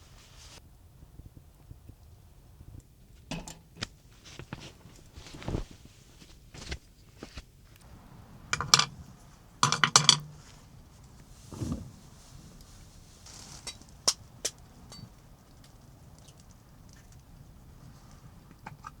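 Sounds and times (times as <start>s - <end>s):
camp cookware clinking: 3.3s - 3.8s, 8.0s - 11.8s, 13.4s - 17.1s.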